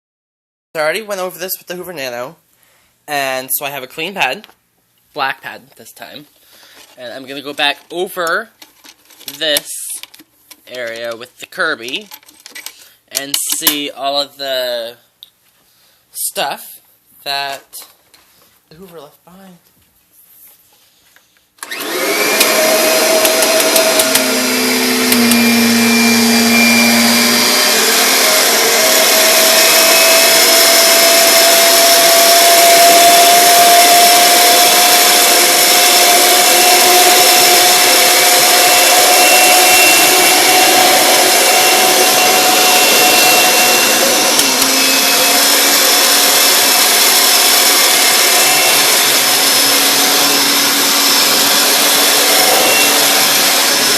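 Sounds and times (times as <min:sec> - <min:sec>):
upright vacuum cleaner running: 0:21.6 - 0:53.9.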